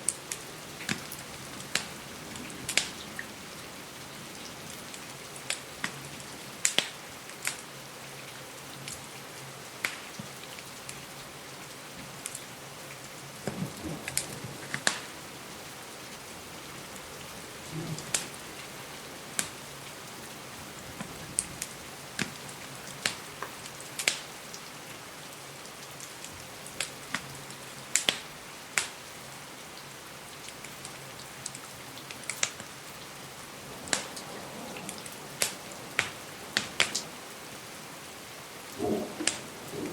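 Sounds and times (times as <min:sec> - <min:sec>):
wood fire crackling: 0:00.0 - 0:07.7, 0:09.7 - 0:11.1, 0:12.0 - 0:25.0, 0:25.6 - 0:29.2, 0:30.2 - 0:39.9
rain hiss: 0:00.0 - 0:39.9.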